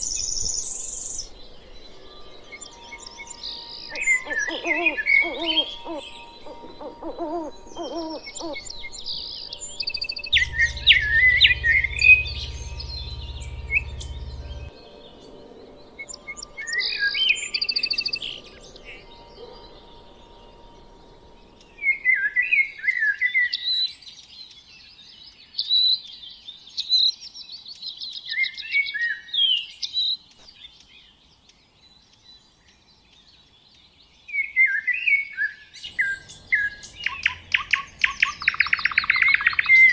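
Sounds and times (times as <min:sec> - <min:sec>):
small birds chirping: 0:00.0 - 0:22.4
low hooting call: 0:01.2 - 0:23.2.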